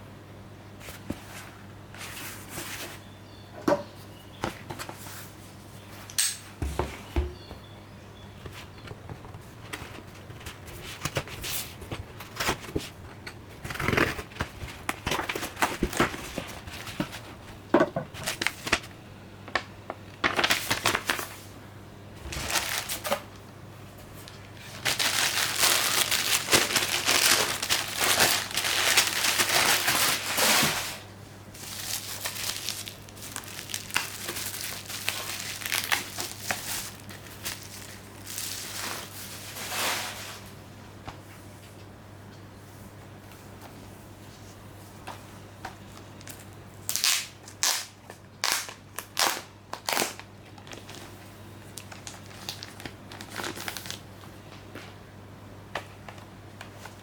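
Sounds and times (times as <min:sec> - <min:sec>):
plastic and paper crinkling: 0:08.4 - 0:21.4, 0:22.2 - 0:23.4, 0:24.0 - 0:40.4, 0:48.4 - 0:55.0.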